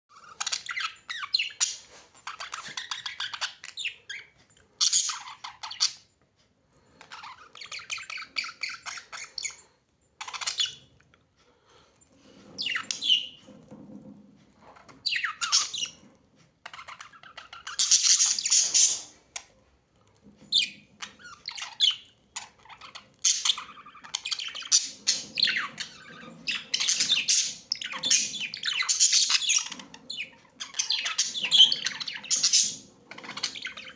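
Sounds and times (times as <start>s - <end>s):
birds chirping and squawking: 0.1s - 6.1s, 6.7s - 11.0s, 11.6s - 19.5s, 20.4s - 33.9s.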